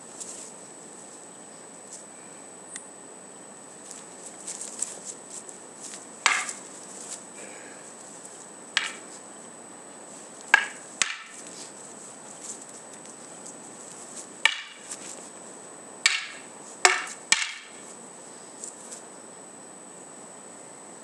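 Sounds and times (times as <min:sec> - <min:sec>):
wooden swords clacking: 0:05.9 - 0:07.5, 0:08.8 - 0:09.2, 0:10.4 - 0:15.3, 0:16.0 - 0:17.8.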